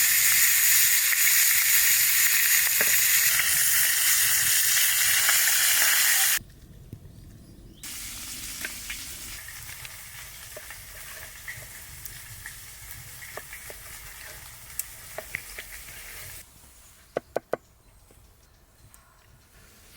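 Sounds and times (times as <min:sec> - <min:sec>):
food sizzling in a pan: 0:00.0 - 0:06.4, 0:07.8 - 0:16.4.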